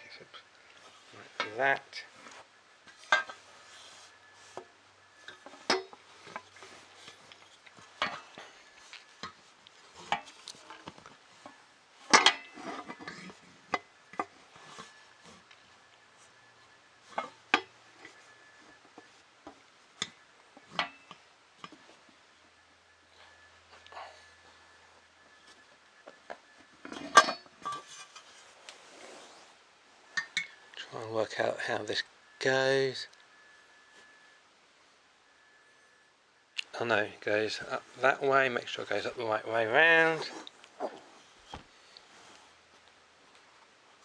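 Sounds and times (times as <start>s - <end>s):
parts clattering: 0.0s - 29.2s.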